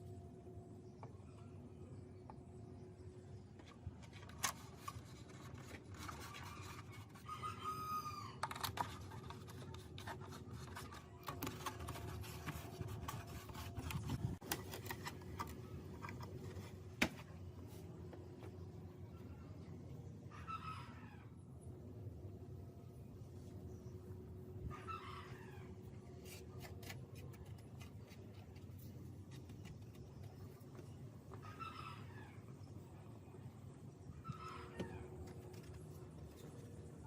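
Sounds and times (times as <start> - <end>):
faint steady hum: 0.0 - 37.0
rooster crowing: 7.2 - 8.4.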